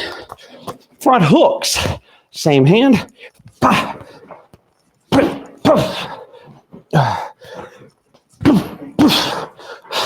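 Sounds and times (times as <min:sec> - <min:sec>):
punches landing on training dummy: 0:05.1 - 0:06.1, 0:08.4 - 0:09.4.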